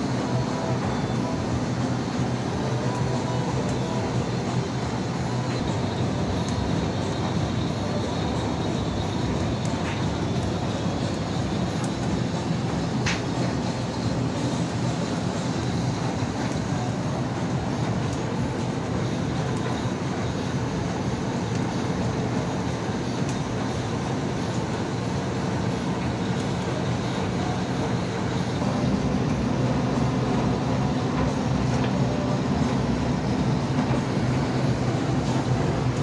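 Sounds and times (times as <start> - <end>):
industrial blower drone: 0.0 - 36.0.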